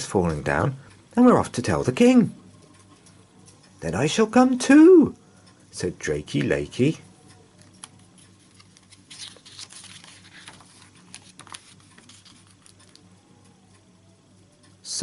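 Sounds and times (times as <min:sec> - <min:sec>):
open fire crackling: 0:00.0 - 0:15.0
soft rustle: 0:08.2 - 0:13.0.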